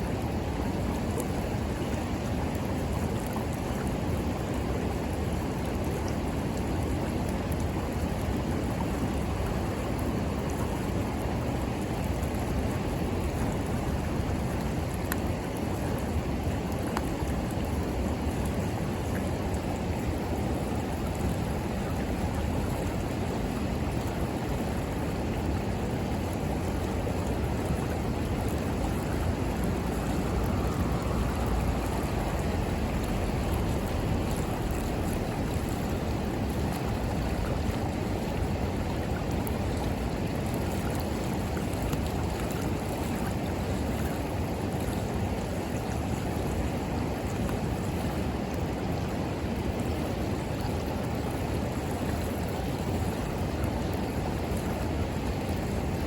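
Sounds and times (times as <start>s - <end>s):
river flowing: 0.0s - 56.0s
campfire crackling: 28.0s - 38.3s.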